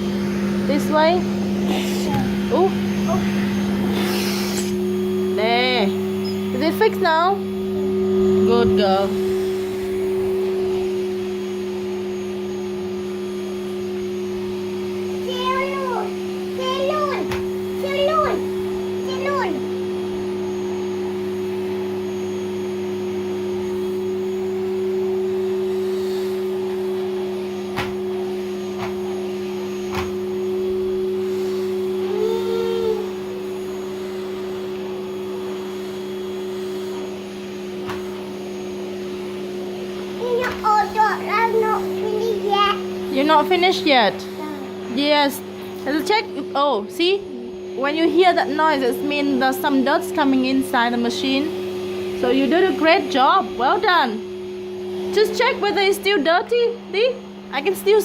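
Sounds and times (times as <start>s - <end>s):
vacuum cleaner running: 0.0s - 58.0s
child's voice: 1.7s - 3.3s, 15.2s - 19.7s, 32.0s - 33.1s, 40.2s - 43.0s, 44.2s - 44.9s.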